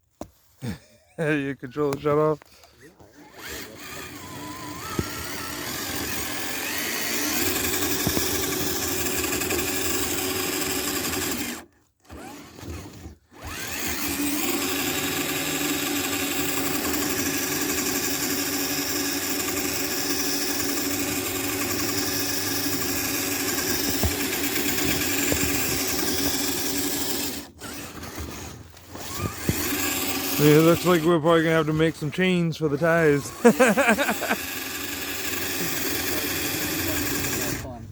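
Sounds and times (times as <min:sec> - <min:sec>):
electric motor whining: 0:03.2 - 0:37.9.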